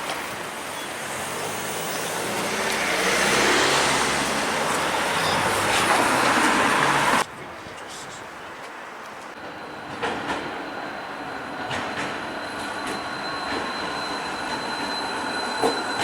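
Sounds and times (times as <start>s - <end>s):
road vehicle passing: 1.0s - 7.2s.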